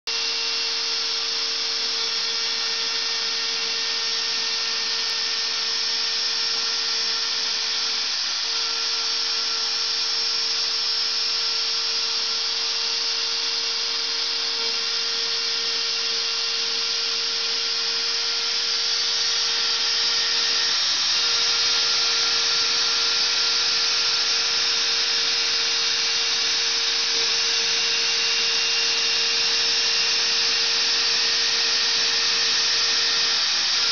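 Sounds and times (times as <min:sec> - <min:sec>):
router milling stone: 0:00.1 - 0:33.9.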